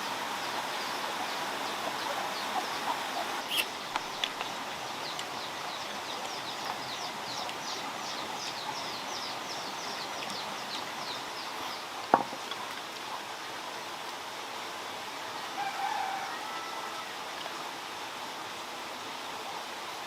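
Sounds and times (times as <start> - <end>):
steady background hiss: 0.0 - 20.0
bird singing high notes: 3.4 - 3.7.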